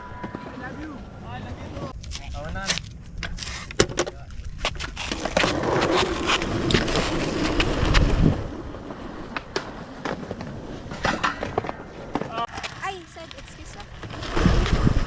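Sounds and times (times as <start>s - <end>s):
skateboard wheels rolling on pavement: 0.0s - 15.0s
skateboard clacks and knocks: 9.1s - 14.9s.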